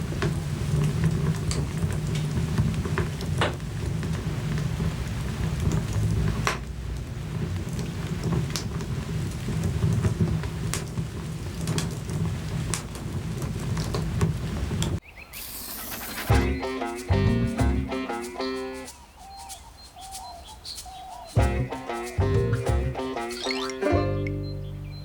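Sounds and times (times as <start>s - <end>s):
fire popping and snapping: 0.0s - 15.0s
rumble of flames: 0.0s - 15.0s.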